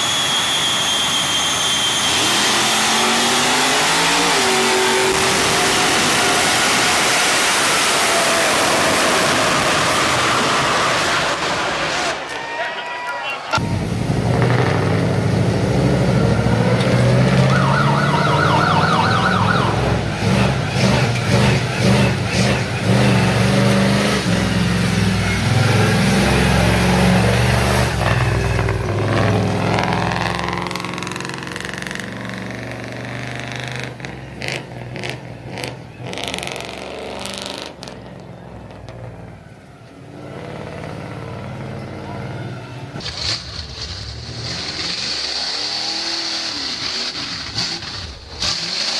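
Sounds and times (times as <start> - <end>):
loud truck engine revving: 0.0 - 12.3, 13.5 - 39.4, 40.0 - 48.9.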